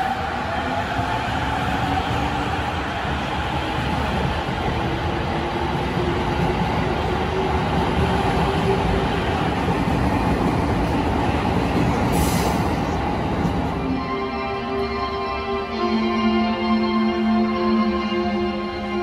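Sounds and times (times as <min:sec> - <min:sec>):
train wheels rumbling: 0:00.0 - 0:14.0.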